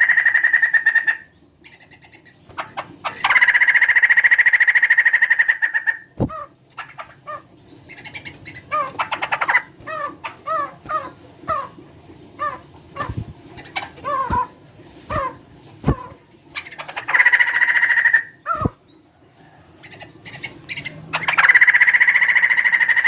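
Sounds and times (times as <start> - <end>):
bird downward-slurred calls: 0.0 - 2.0, 12.4 - 18.9, 19.8 - 23.0
bird rattling trill: 2.5 - 6.0, 12.4 - 18.7, 20.4 - 23.0.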